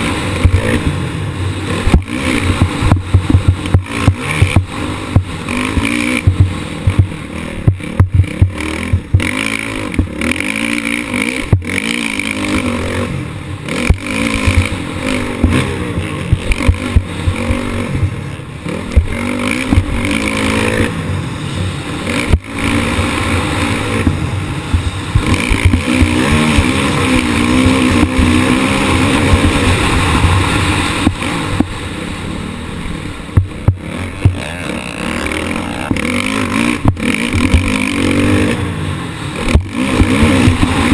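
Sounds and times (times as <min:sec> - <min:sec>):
motocross bike engine revving: 0:00.0 - 0:40.9
sharp knocks: 0:01.8 - 0:10.2, 0:24.0 - 0:26.6, 0:35.6 - 0:37.8.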